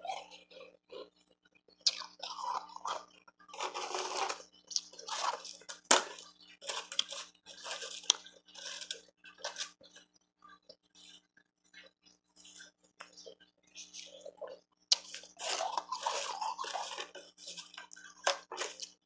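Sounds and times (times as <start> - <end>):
ice being crunched and chewed: 1.8 - 9.8, 12.4 - 19.0.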